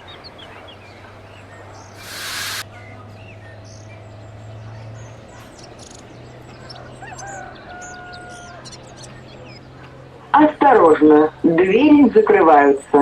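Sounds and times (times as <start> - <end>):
small birds chirping: 1.9 - 2.6, 5.4 - 9.7
loud hiss: 2.0 - 2.6
rooster crowing: 7.0 - 8.6.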